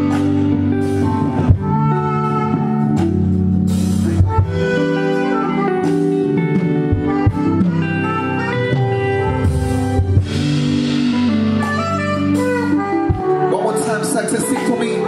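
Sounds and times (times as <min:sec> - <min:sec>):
bass: 0:00.0 - 0:15.0
guitar: 0:00.0 - 0:15.0
keyboard notes: 0:00.0 - 0:15.0
drum kit hits: 0:09.2 - 0:13.5.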